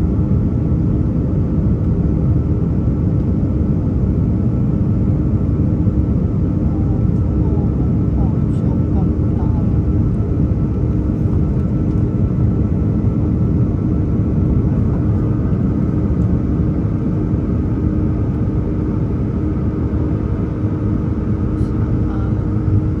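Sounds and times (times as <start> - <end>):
constant engine hums: 0.0 - 23.0
low cabin rumble: 0.0 - 23.0.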